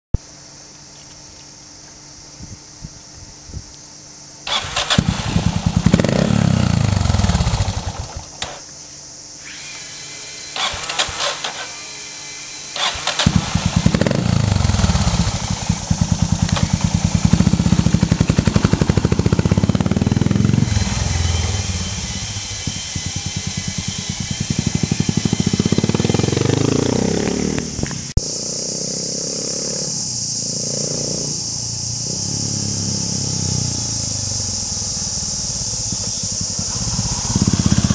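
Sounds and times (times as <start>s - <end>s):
motorcycle engine revving: 4.5s - 8.6s, 10.6s - 11.8s, 12.8s - 37.9s
steady hiss: 31.5s - 37.9s.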